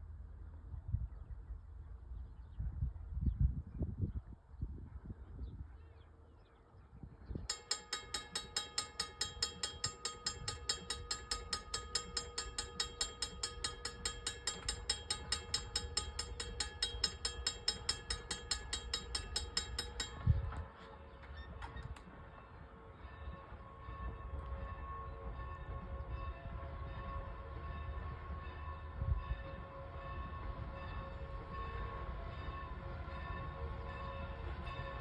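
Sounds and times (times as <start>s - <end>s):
railroad bell ringing: 7.5s - 35.0s.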